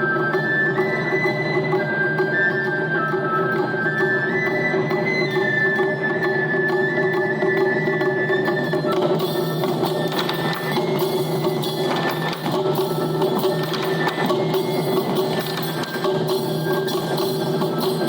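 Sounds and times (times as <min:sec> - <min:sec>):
taiko drums rapid rhythm: 0:00.0 - 0:18.0.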